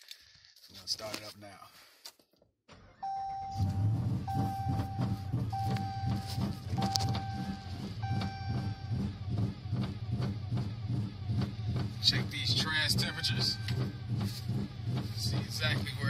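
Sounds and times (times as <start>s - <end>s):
engine starting and idling: 2.7s - 16.0s
dashboard warning chime: 3.0s - 9.3s, 12.0s - 14.4s.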